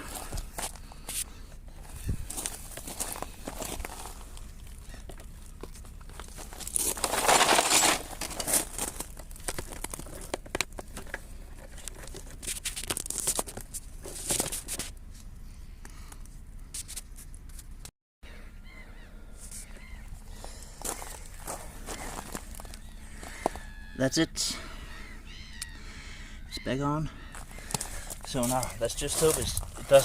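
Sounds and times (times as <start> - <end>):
rustling scrape: 5.8 - 15.2.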